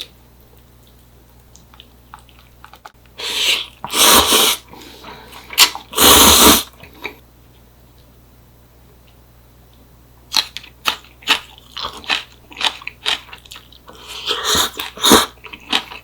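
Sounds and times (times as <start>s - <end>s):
slurping noodles: 3.2s - 4.6s, 5.3s - 6.8s, 13.9s - 15.4s.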